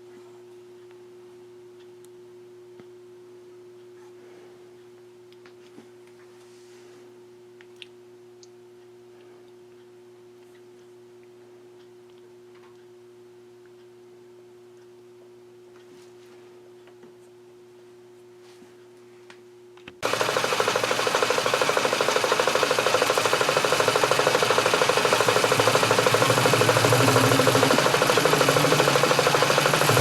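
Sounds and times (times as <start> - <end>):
machine tool rattling: 20.0 - 30.0.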